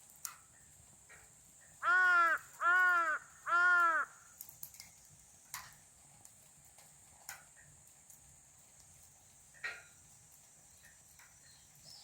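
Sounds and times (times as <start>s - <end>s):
faint clicks: 0.0s - 1.7s, 3.7s - 12.0s
crow cawing: 1.8s - 4.3s.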